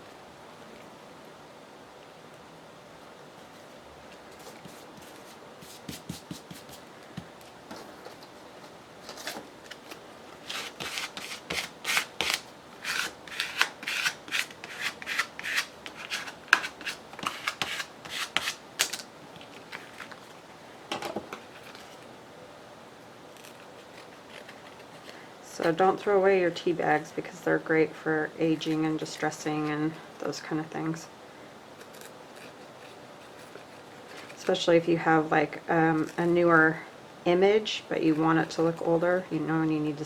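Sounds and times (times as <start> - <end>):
paper rubbed by hand: 4.3 - 6.9, 10.4 - 18.6.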